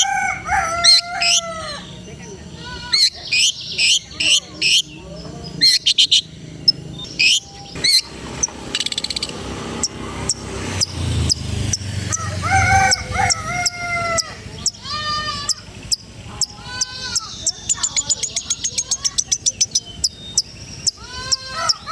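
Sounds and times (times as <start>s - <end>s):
shrike singing: 0.0s - 21.9s.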